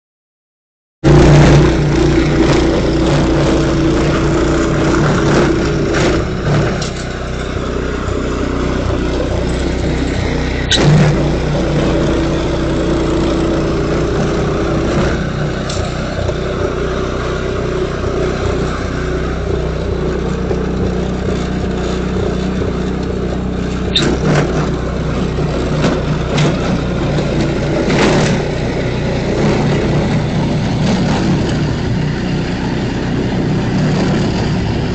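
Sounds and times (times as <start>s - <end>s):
snow-clearing machine engine: 1.0s - 34.9s.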